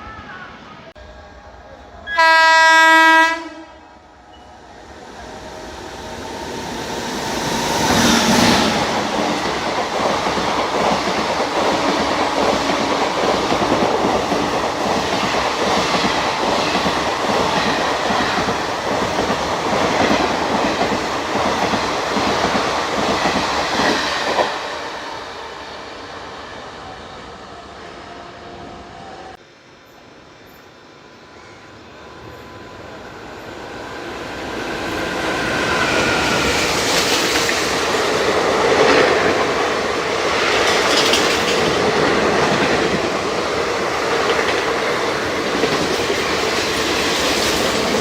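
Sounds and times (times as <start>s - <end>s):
train horn: 1.0s - 4.6s
train wheels clattering over rails: 6.5s - 24.6s, 35.1s - 48.0s.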